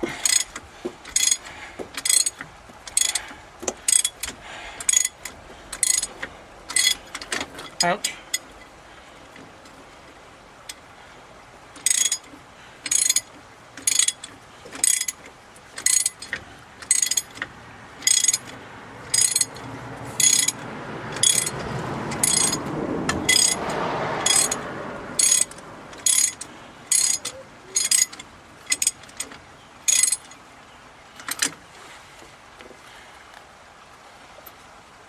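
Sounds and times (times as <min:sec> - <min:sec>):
ratchet wrench clicking: 0:00.1 - 0:00.5, 0:01.1 - 0:03.3, 0:03.9 - 0:06.1, 0:11.8 - 0:12.2, 0:12.9 - 0:15.2, 0:15.8 - 0:17.4, 0:18.0 - 0:19.6, 0:20.2 - 0:24.6, 0:25.2 - 0:29.0
rough scraping noise: 0:18.1 - 0:28.1.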